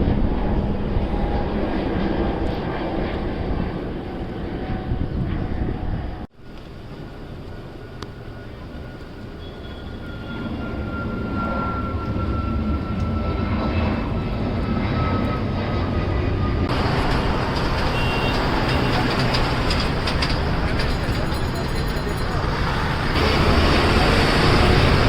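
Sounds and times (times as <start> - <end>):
falling jet whine: 0.0 - 25.0
jet engines roaring: 0.0 - 25.0.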